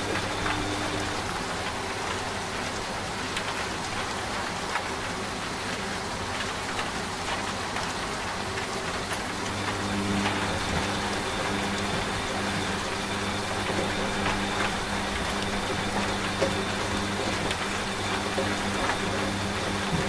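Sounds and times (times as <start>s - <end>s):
steady rain falling: 0.0s - 20.0s
washing machine hum: 0.0s - 20.0s.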